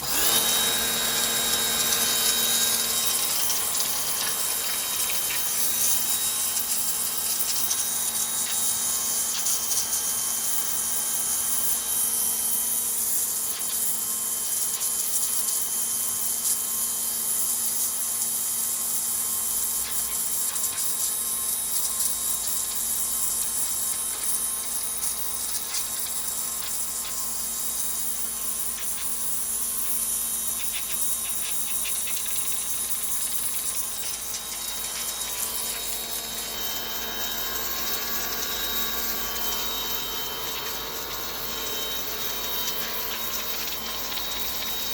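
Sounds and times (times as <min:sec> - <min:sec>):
pressure washer motor hum: 0:00.0 - 0:09.5, 0:33.0 - 0:44.9.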